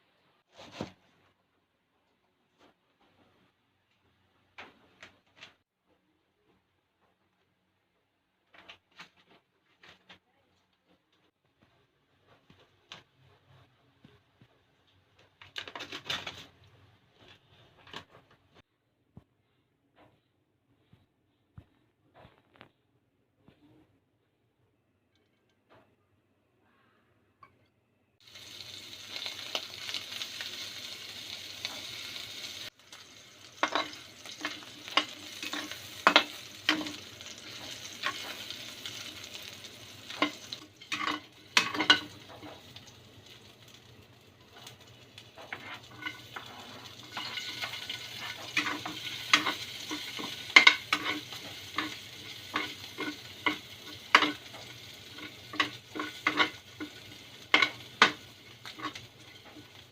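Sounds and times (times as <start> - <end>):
food sizzling in a pan: 28.2 - 59.9
utensil clinking and scraping pan: 32.9 - 42.8, 44.6 - 59.9.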